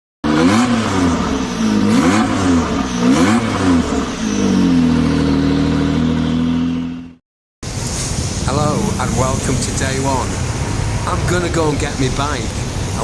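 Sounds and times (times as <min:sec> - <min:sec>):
engine revving: 0:00.2 - 0:07.2.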